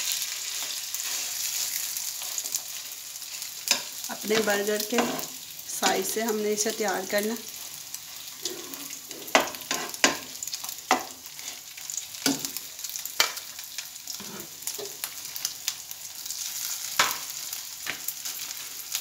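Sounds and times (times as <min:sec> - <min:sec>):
patty sizzling in oil: 0:00.0 - 0:19.0
spatula scraping and knocking pan: 0:03.7 - 0:06.2, 0:08.4 - 0:10.3, 0:10.9 - 0:11.6, 0:14.2 - 0:15.0.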